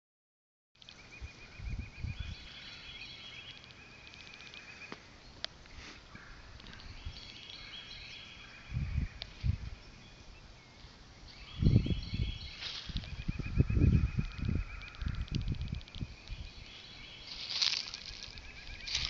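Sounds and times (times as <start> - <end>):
songbirds chirping and trilling: 0.8 - 19.0.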